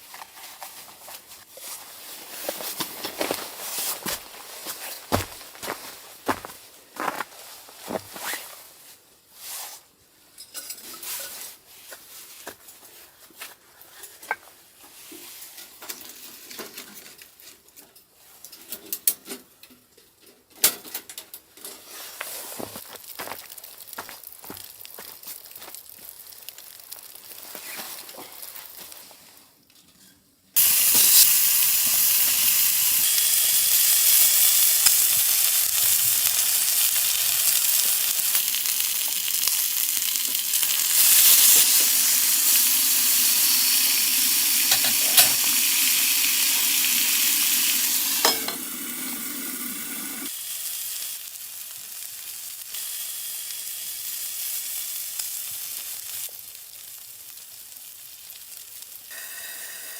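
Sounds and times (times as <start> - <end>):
food sizzling in a hot pan: 23.0 - 28.7, 30.6 - 59.9.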